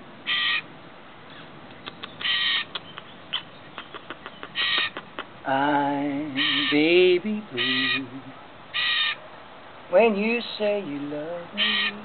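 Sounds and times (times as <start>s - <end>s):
bird squawking harshly: 0.3s - 0.6s, 1.7s - 5.4s, 6.4s - 6.8s, 7.6s - 8.0s, 8.7s - 9.2s, 11.6s - 12.0s.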